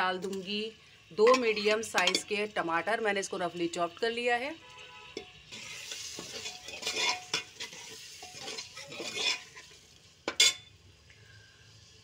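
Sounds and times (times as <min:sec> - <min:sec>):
tomatoes sizzling in oil: 0:00.0 - 0:12.0
metal ladle scraping pot: 0:05.1 - 0:10.6.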